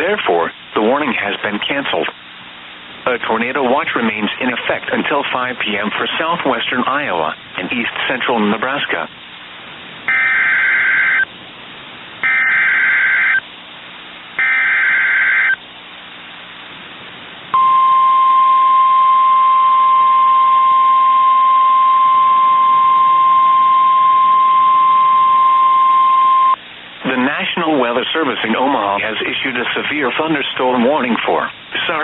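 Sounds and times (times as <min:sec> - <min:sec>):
steady alarm tone: 0:10.1 - 0:11.3, 0:12.2 - 0:13.4, 0:14.4 - 0:15.6, 0:17.6 - 0:26.6
warbling data bursts: 0:12.2 - 0:13.4, 0:14.4 - 0:15.6.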